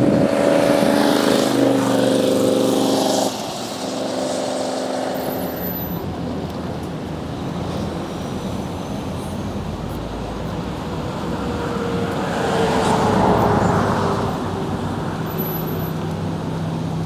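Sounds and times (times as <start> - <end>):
vehicle passing close: 0.0 - 6.3
road traffic noise: 0.0 - 17.0.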